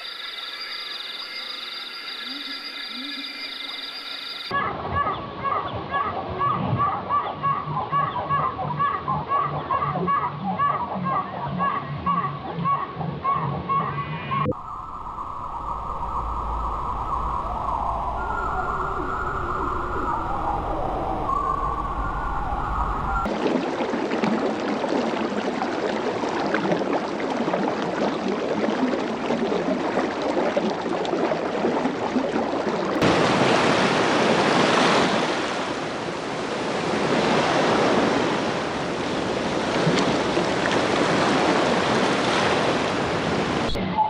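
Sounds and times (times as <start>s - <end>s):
steady rushing noise like surf: 33.0s - 43.7s.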